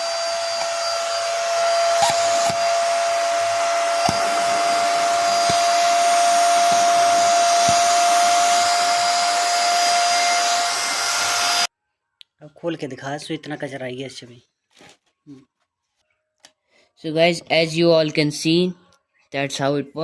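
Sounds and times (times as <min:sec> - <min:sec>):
vacuum cleaner running: 0:00.0 - 0:11.7.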